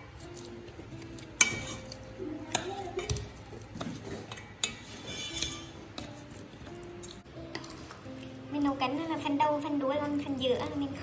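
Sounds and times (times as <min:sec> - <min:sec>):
utensil clinking against bowl: 0:01.4 - 0:06.4.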